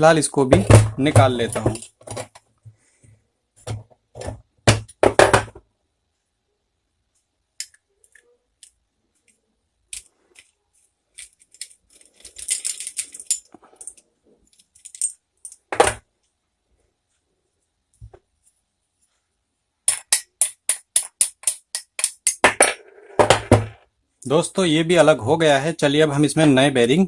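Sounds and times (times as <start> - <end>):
metal clinking and clanking: 11.1 - 15.7
metal jangling: 11.2 - 15.6.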